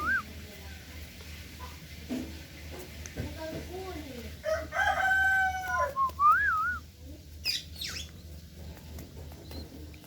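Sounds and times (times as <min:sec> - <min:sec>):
rooster crowing: 0:04.4 - 0:06.0.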